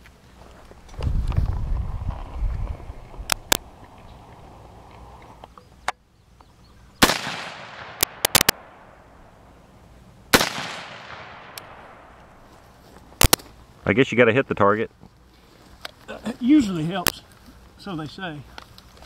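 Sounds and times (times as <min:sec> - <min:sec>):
rifle shots with echo: 0:07.0 - 0:09.3, 0:10.3 - 0:12.4.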